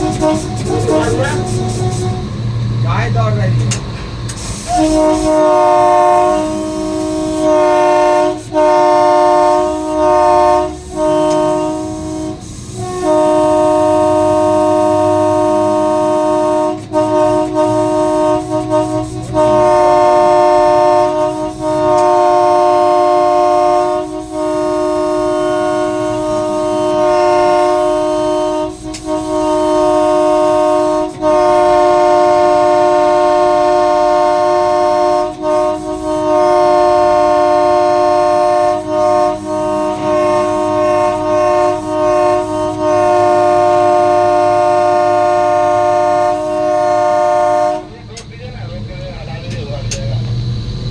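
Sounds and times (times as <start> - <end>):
locomotive horn blasts: 0.0 - 48.3
running train rumble: 0.0 - 50.9.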